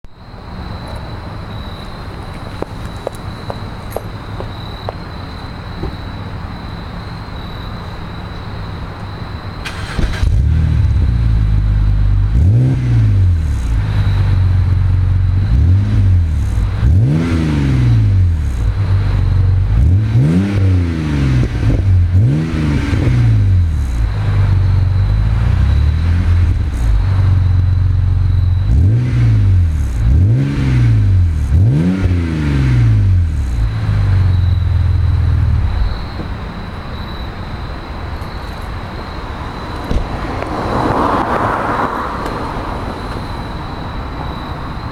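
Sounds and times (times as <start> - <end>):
car engine revving: 9.7 - 37.1.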